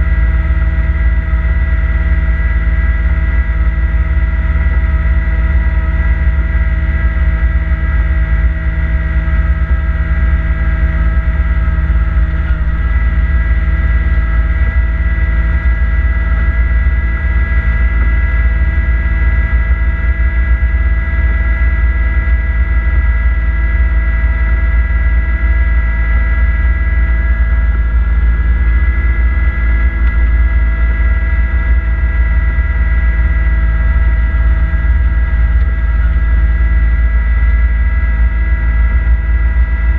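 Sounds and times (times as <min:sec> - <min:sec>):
snowblower whine: 0:00.0 - 0:39.9
tractor diesel engine rumbling: 0:09.8 - 0:16.8, 0:33.0 - 0:37.3.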